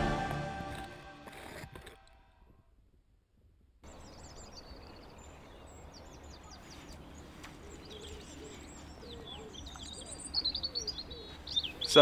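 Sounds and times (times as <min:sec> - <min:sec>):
small birds chirping and singing: 0:03.9 - 0:12.0.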